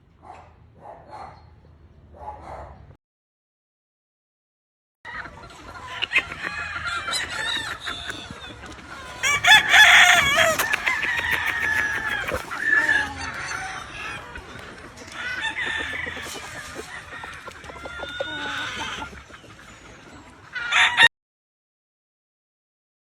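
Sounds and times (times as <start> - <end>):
chickens clucking: 5.1 - 21.0
roosters crowing: 5.1 - 21.1.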